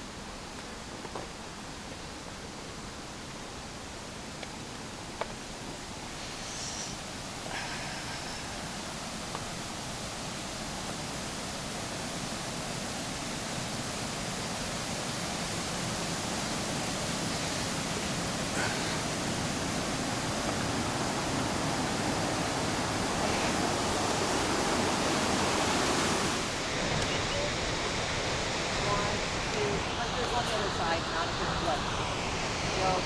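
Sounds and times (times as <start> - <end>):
steady rushing noise: 3.9 - 33.0.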